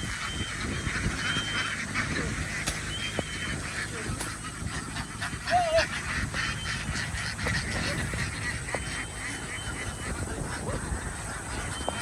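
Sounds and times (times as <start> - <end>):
flock of ducks quacking: 0.0 - 12.0.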